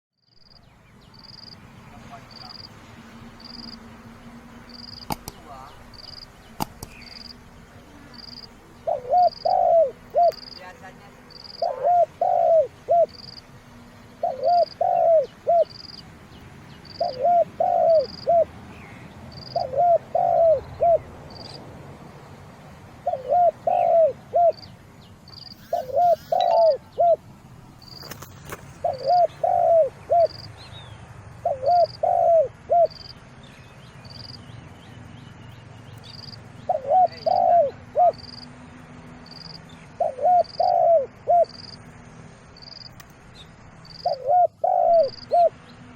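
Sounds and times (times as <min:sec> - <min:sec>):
dove cooing: 0:08.0 - 0:10.6, 0:11.3 - 0:13.4, 0:14.2 - 0:16.0, 0:16.8 - 0:18.5, 0:19.3 - 0:21.5, 0:23.0 - 0:24.7, 0:25.5 - 0:27.3, 0:27.9 - 0:30.5, 0:31.4 - 0:33.1, 0:36.6 - 0:38.3, 0:40.0 - 0:41.6, 0:44.0 - 0:45.6
thin high chirp: 0:25.4 - 0:26.8.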